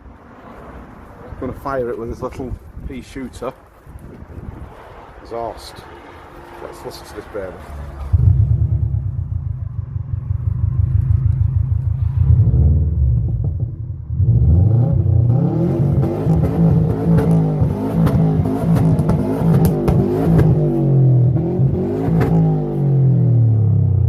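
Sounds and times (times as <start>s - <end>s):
car engine revving: 6.2s - 24.0s
car engine starting and idling: 7.8s - 24.0s.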